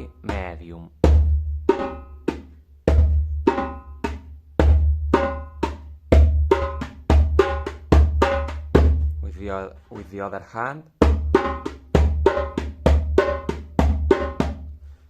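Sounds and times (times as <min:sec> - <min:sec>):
djembe drumming: 0:00.0 - 0:09.3, 0:11.0 - 0:14.7.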